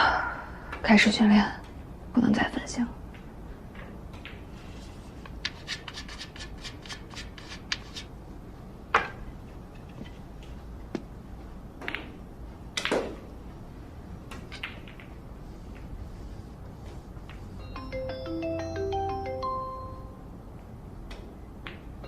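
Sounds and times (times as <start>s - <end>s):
billiard balls knocking: 3.1s - 8.2s, 8.9s - 13.3s, 14.2s - 15.9s
scratchy rubbing: 4.6s - 8.2s.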